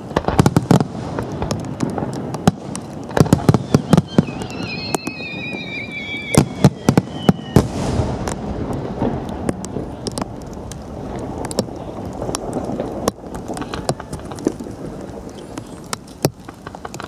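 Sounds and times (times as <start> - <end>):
firecracker pops: 0.0 - 4.8
low rumbling din: 3.0 - 11.5.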